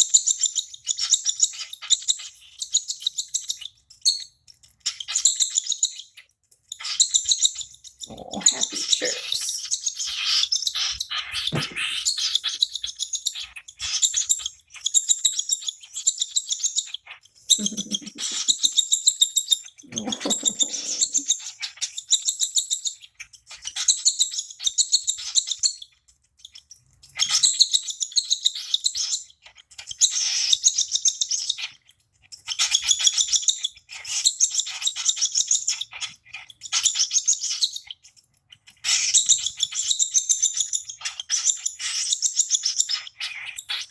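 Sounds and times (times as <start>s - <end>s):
baby cockatiel chirping: 0.0s - 43.9s.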